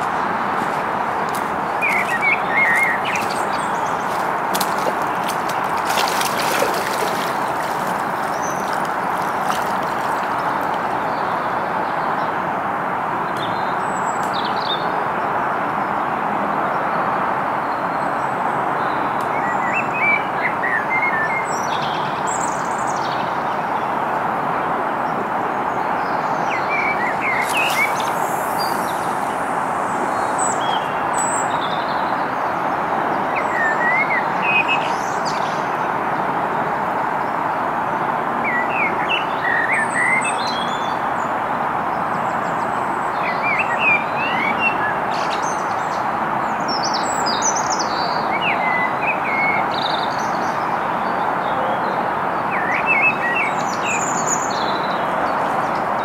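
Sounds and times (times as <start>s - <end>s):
small birds chirping: 0.0s - 12.0s, 25.8s - 32.1s
steady rushing noise: 27.1s - 30.7s.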